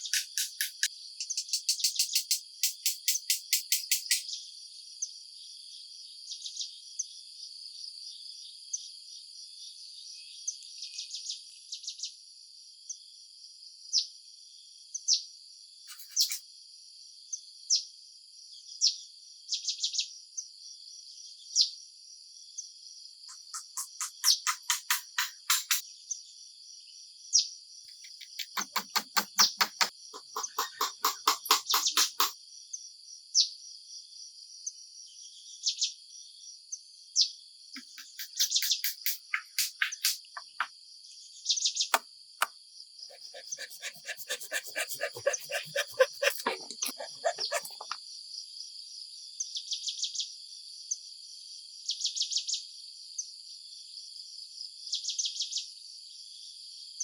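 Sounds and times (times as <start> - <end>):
chattering bird calls: 0.0 - 4.4, 15.9 - 16.4, 23.3 - 25.8, 27.9 - 32.4, 37.8 - 40.7, 43.1 - 48.0
insects trilling: 23.3 - 25.8, 37.8 - 40.6, 43.0 - 48.0
pulsed chirps: 23.3 - 25.8, 37.8 - 40.7, 43.1 - 48.0.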